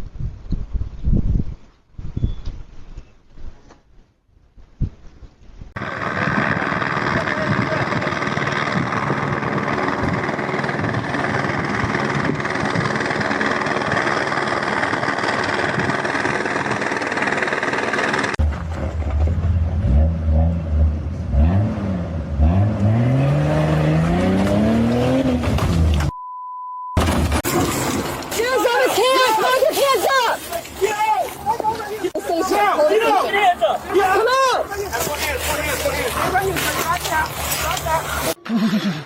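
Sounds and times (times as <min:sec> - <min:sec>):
mechanical running noise: 0:05.8 - 0:18.4
engine revving: 0:05.8 - 0:26.1.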